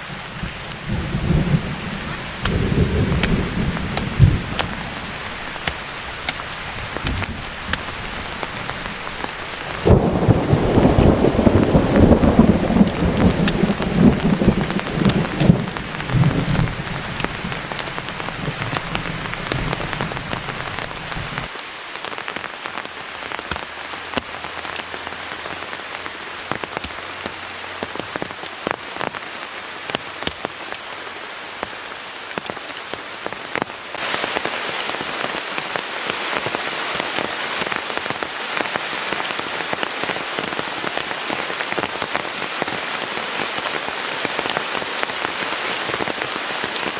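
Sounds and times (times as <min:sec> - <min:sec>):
thunder rumble: 0:00.0 - 0:21.5
raindrops ticking: 0:00.0 - 0:30.9
heavy rain falling: 0:00.0 - 0:46.9.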